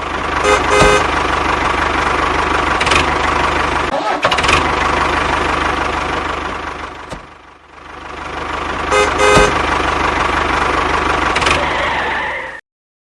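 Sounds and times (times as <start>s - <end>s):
vehicle engine chugging: 0.0s - 12.6s
horn toots: 0.4s - 1.1s, 8.9s - 9.6s.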